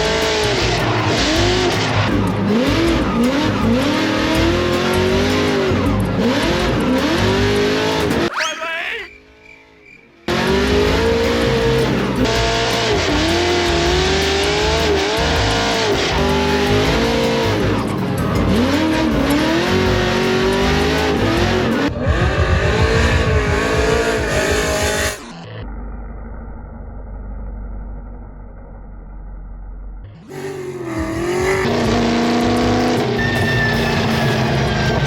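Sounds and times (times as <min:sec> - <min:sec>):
music: 0:00.0 - 0:08.3, 0:10.2 - 0:25.3, 0:30.4 - 0:35.0
tyre squeal: 0:08.3 - 0:09.2, 0:30.3 - 0:31.8
car engine revving: 0:10.3 - 0:25.2, 0:30.3 - 0:35.0.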